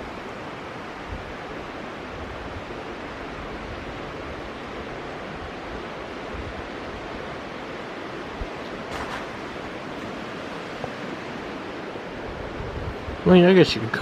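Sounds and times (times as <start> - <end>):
outdoor rushing noise: 7.7 - 13.2.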